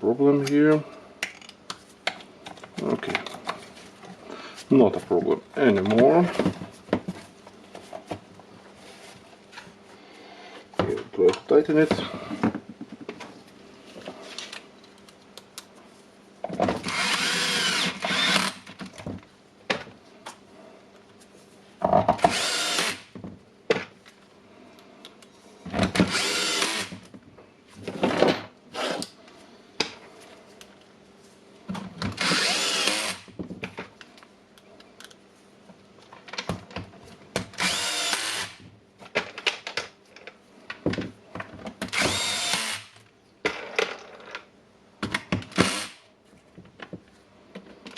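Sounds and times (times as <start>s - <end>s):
electric screwdriver driving screws: 16.8s - 18.6s, 22.2s - 23.1s, 26.0s - 27.0s, 32.2s - 33.3s, 37.6s - 38.6s, 41.9s - 43.0s, 45.5s - 46.0s.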